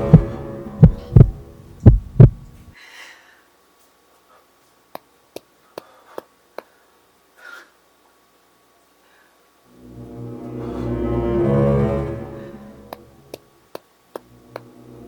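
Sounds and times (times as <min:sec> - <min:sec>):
heartbeat thumps: 0:00.0 - 0:02.6
low drone: 0:00.0 - 0:02.7, 0:09.7 - 0:13.3.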